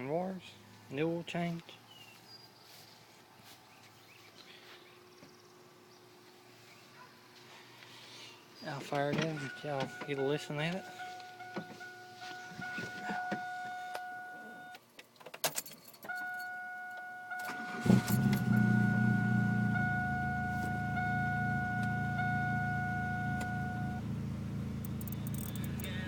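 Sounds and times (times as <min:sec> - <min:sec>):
car engine cranking and idling: 0:08.5 - 0:15.0, 0:15.9 - 0:26.0
keys clicking in ignition: 0:08.8 - 0:18.9, 0:19.8 - 0:24.0, 0:24.7 - 0:26.0.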